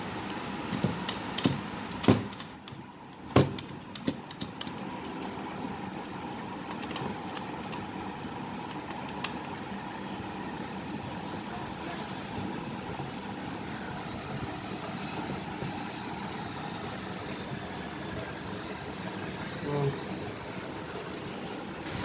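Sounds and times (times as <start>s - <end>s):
hard objects knocking: 0.7s - 4.7s
sharp clicks: 6.7s - 7.8s.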